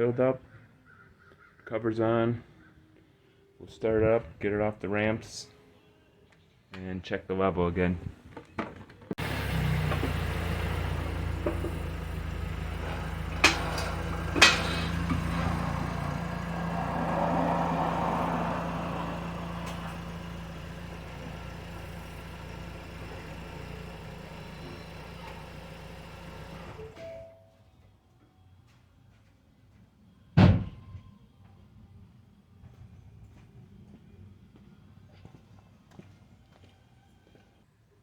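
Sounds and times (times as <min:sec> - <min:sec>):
car engine running: 0:09.2 - 0:27.0.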